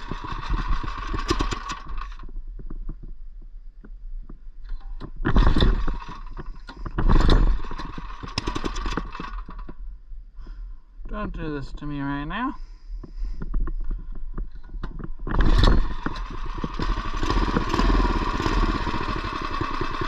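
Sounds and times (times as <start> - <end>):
small engine revving and sputtering: 0.0 - 2.2, 5.2 - 9.8, 15.2 - 20.0
person talking: 11.1 - 12.6.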